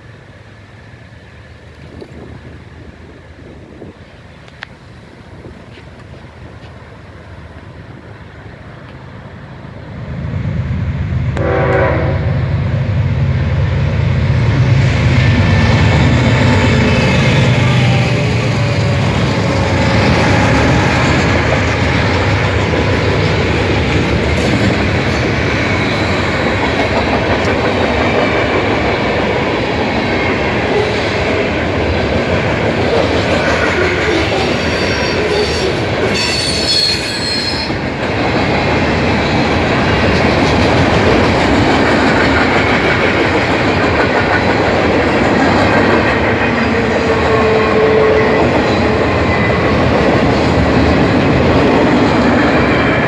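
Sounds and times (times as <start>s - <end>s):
steel wheels running on rails: 12.5s - 53.0s
wheel squeal: 34.1s - 37.8s.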